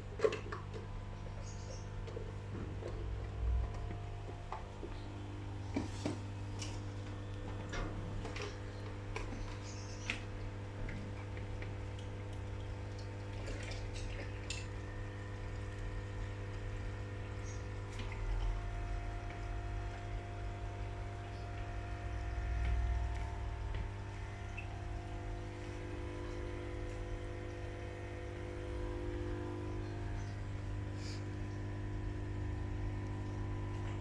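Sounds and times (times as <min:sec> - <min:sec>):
aquarium equipment humming: 0:00.0 - 0:34.0
water trickling: 0:09.6 - 0:29.1.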